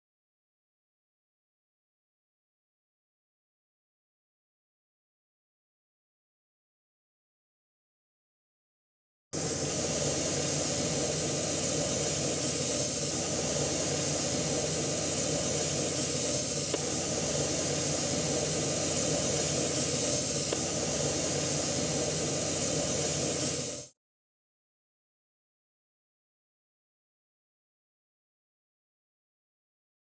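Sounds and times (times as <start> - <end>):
compressed-air gun hissing: 9.4 - 23.9.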